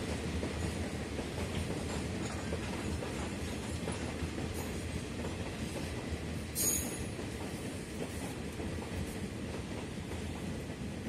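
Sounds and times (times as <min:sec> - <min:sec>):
train wheels clattering on rails: 0:00.0 - 0:11.0
train brake screech: 0:06.6 - 0:07.1.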